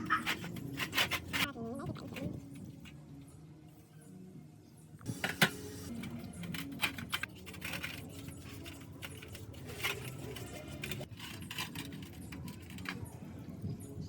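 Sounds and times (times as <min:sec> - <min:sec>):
metal parts clinking: 0:00.0 - 0:01.5, 0:05.3 - 0:13.1.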